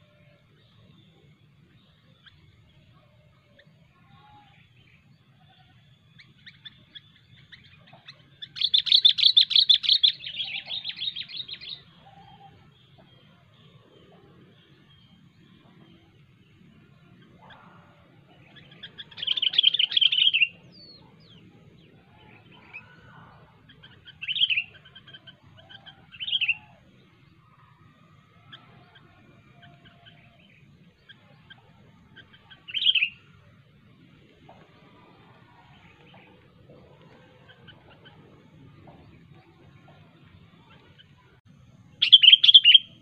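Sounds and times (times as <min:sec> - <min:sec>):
bulbul calling: 0:03.6 - 0:16.0, 0:17.0 - 0:27.2, 0:28.2 - 0:33.6, 0:42.0 - 0:43.0.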